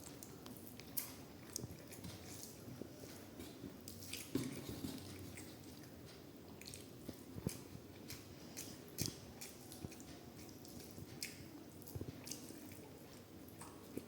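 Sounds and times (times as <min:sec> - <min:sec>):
man chewing food: 0:00.0 - 0:14.0.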